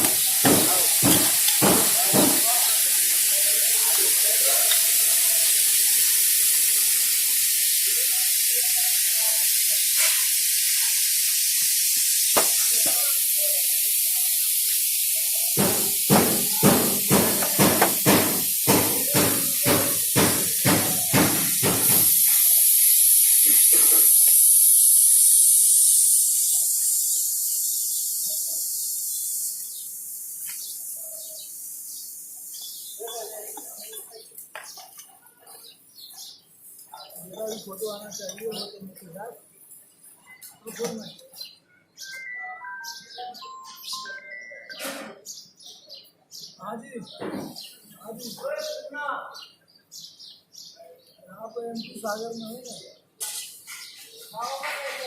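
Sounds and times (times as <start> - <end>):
hammer knocking on metal: 0.0 - 2.5, 15.6 - 22.2
steady high hiss: 0.0 - 34.6.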